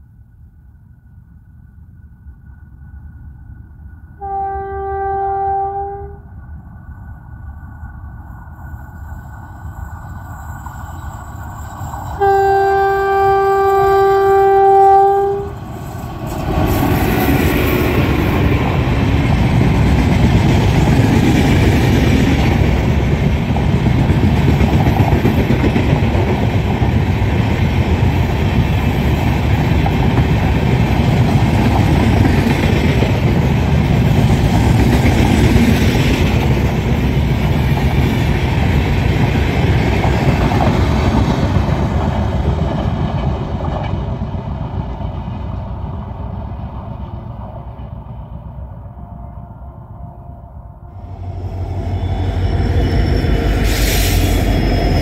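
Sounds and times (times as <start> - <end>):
train rumbling past: 0.0 - 55.0
locomotive horn blast: 4.2 - 6.3, 12.2 - 15.6.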